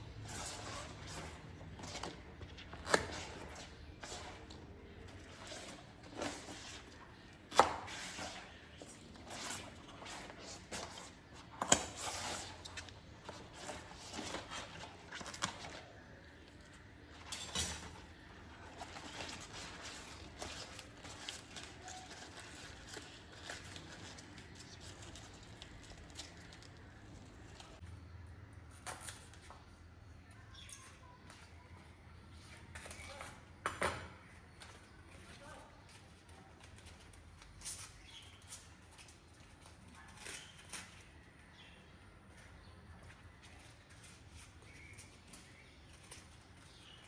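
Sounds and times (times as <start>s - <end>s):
soft rustling and tearing: 0.0s - 27.8s.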